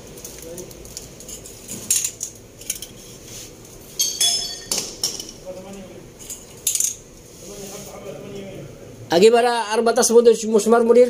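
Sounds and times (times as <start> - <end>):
metal parts clinking and clanking: 0.2 - 3.1, 4.0 - 7.0.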